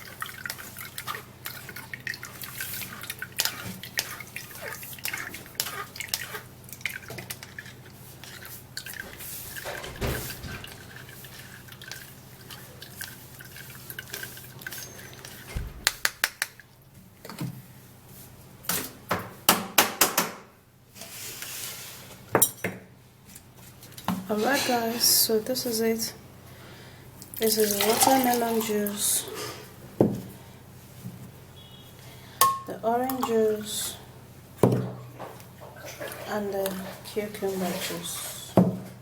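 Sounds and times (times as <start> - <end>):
juice dripping through a strainer: 0.0 - 15.5, 27.2 - 29.2.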